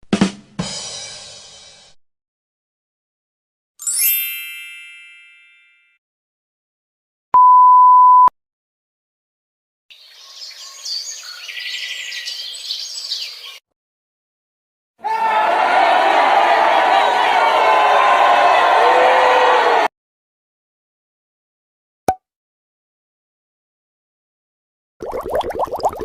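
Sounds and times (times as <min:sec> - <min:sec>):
bell-like ding: 0:03.9 - 0:06.0
censor bleep: 0:07.4 - 0:08.3.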